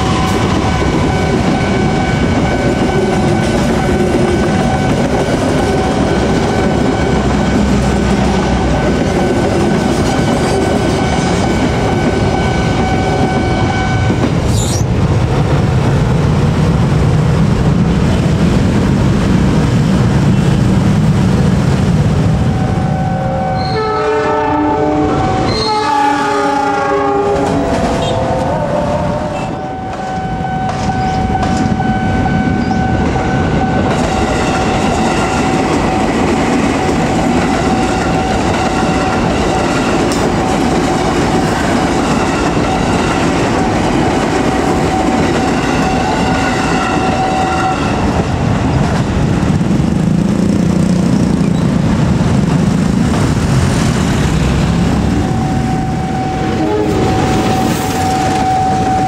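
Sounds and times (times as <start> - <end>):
train horn blasts: 0.0 - 5.1, 10.0 - 14.3, 22.4 - 35.6, 37.6 - 40.2, 44.8 - 48.4, 55.2 - 59.0
train coaches rolling over rails: 0.0 - 59.0
level crossing ringing tones: 55.2 - 59.0.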